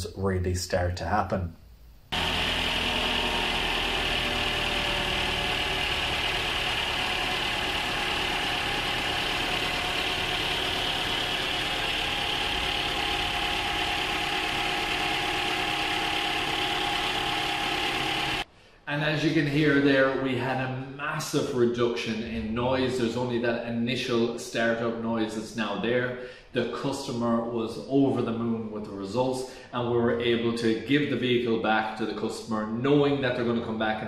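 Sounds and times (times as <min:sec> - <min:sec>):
petrol engine idling: 0:02.1 - 0:18.4.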